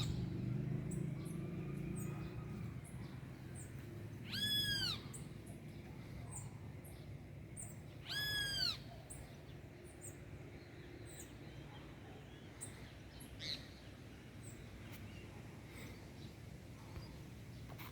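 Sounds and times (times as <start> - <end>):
birds chirping: 0.0 - 17.9
bird call rising and falling: 3.6 - 5.3.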